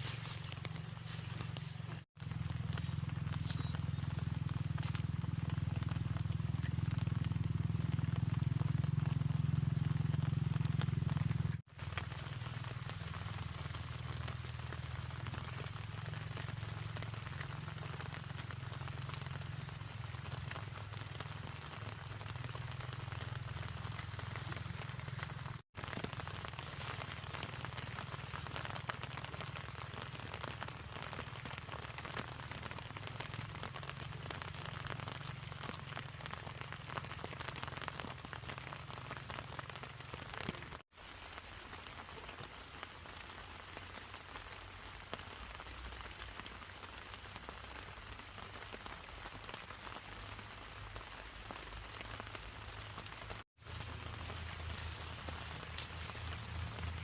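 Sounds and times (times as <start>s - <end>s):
rain pattering: 0.0s - 57.0s.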